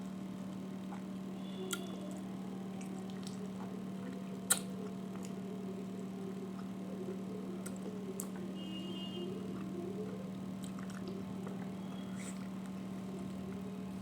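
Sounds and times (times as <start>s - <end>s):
steady low hum: 0.0s - 14.0s
eating clicks: 4.5s - 5.4s.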